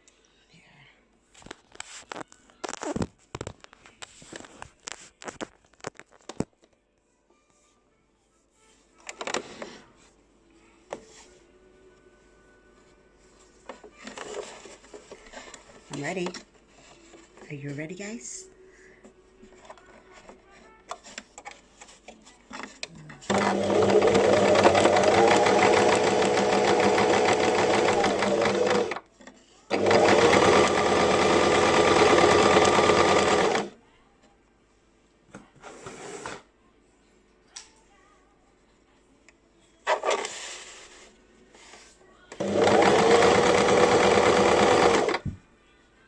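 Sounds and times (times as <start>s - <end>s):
sewing machine stitching: 23.2s - 29.0s, 29.7s - 33.7s, 42.3s - 45.2s.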